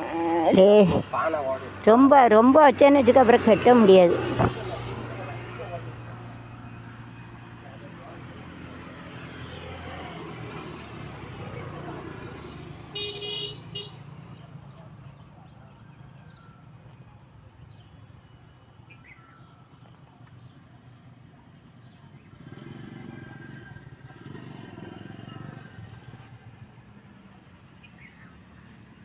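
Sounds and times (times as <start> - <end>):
road traffic passing: 0.0 - 29.0
vehicle horn toot: 12.9 - 14.0.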